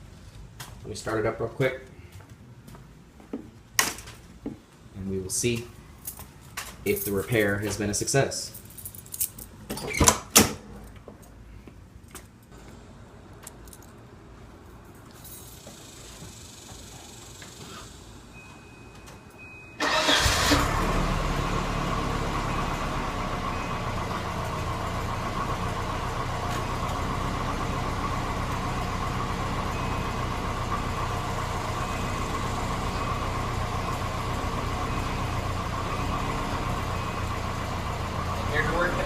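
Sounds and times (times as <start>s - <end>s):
car engine starting and idling: 19.7s - 39.0s.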